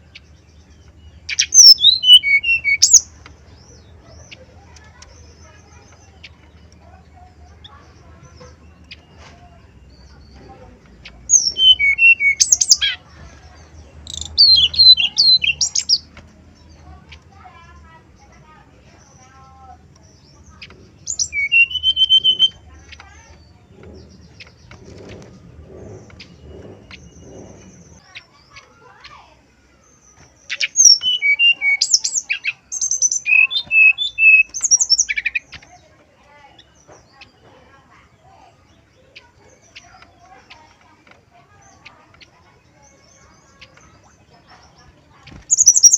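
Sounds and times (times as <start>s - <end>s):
flycatcher singing: 0.0s - 45.9s
bird singing whistled notes: 0.1s - 3.1s, 11.2s - 13.0s, 14.0s - 16.7s, 21.0s - 23.0s, 25.4s - 28.1s, 29.8s - 35.8s, 45.4s - 45.9s.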